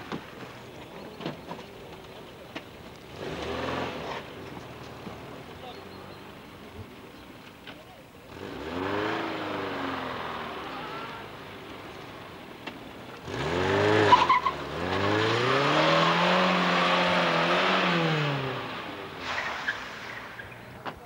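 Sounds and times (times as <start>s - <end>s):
car engine revving: 3.0s - 5.6s, 8.2s - 20.6s
tyre squeal: 14.0s - 14.6s, 19.2s - 20.7s.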